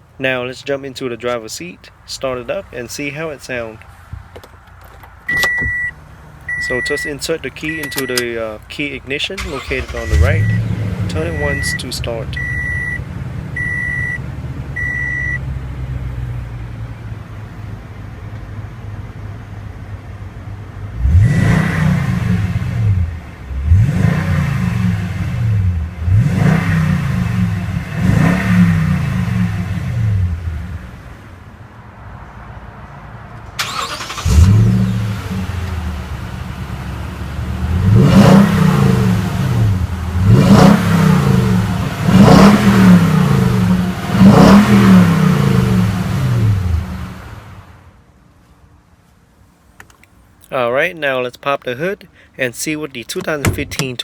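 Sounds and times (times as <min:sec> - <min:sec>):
truck engine idling and revving: 0:00.0 - 0:47.8, 0:49.6 - 0:54.0
warning chime beeping: 0:06.5 - 0:08.5, 0:09.2 - 0:13.0.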